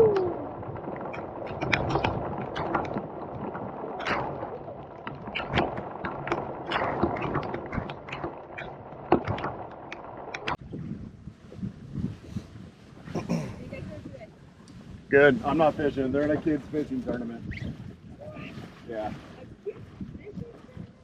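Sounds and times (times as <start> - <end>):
raindrops ticking on boat: 0.0 - 10.6.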